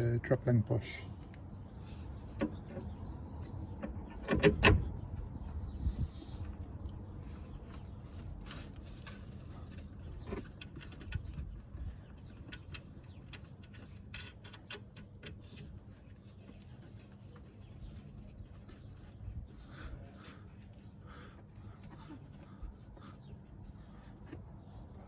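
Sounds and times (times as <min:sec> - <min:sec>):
steady low hum: 0:14.0 - 0:25.0.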